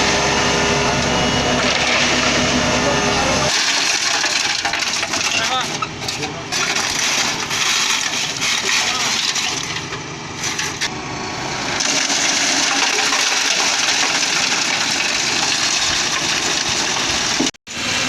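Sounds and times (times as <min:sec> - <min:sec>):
diesel truck engine: 0:00.0 - 0:18.0
wet concrete rushing and crackling: 0:03.5 - 0:10.8, 0:11.8 - 0:17.5.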